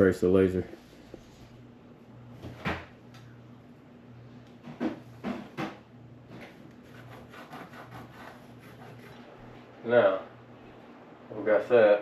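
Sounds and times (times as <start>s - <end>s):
faint steady hum: 0.0s - 12.0s
pencil scratching on wall: 6.4s - 9.5s.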